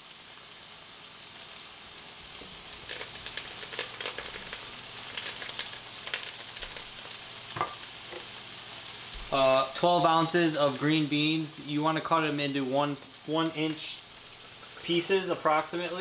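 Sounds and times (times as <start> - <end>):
food sizzling in a pan: 0.0 - 16.0
crackling pops: 2.4 - 7.9.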